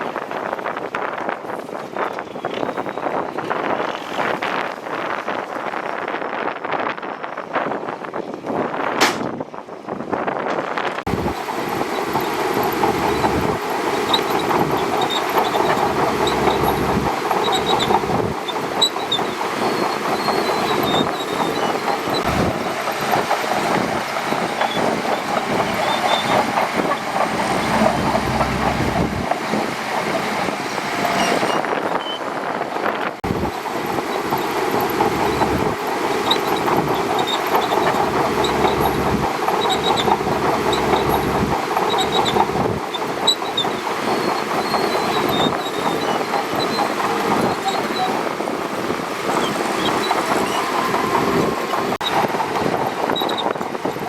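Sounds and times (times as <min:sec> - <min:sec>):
steel tracks clanking and squeaking: 0:00.1 - 0:08.2, 0:10.6 - 0:54.0
bulldozer engine running: 0:11.0 - 0:54.0.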